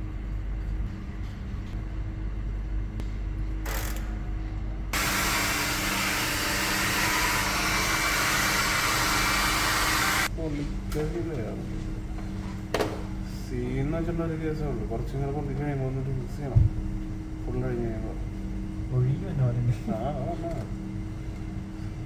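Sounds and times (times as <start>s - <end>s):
low workshop hum: 0.0s - 22.0s
compressed air hissing: 5.0s - 10.3s.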